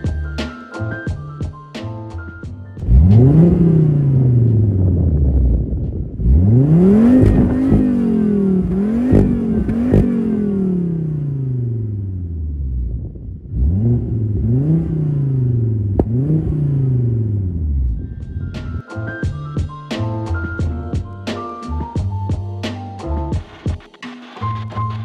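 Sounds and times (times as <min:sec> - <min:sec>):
car engine revving: 0:02.8 - 0:18.8.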